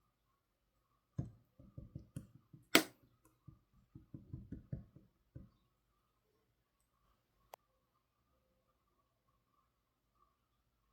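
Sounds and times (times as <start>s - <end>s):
sharp crackling pop: 2.7s - 3.0s.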